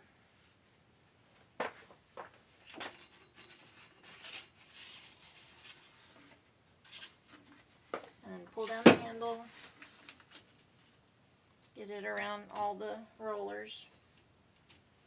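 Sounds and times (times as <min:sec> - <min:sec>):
soft rustles: 0:01.3 - 0:11.8.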